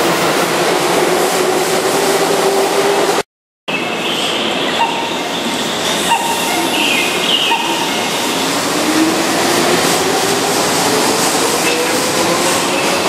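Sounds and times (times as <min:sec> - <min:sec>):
train rumbling slowly: 0:03.8 - 0:13.0.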